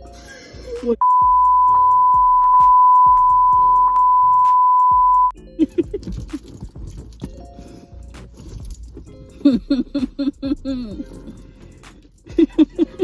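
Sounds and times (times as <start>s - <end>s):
background music: 0.0s - 13.0s
censor bleep: 1.0s - 5.3s.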